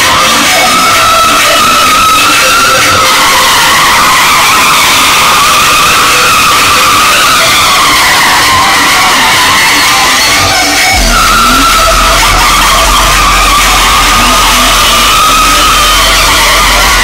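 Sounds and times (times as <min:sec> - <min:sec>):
car tyres squealing: 0:00.0 - 0:17.0
car engine roar: 0:10.8 - 0:17.0.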